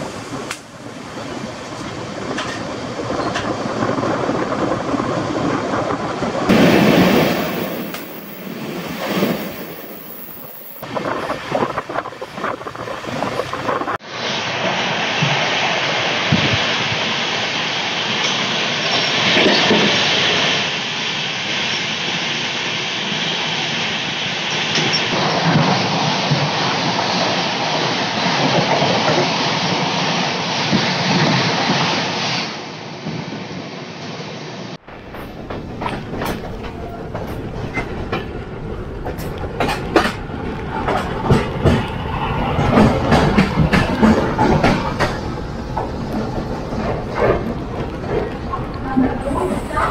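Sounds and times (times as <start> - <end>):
train wheels on rails: 0.0 - 49.9
clacks over rail joints: 1.7 - 3.6, 34.9 - 49.3.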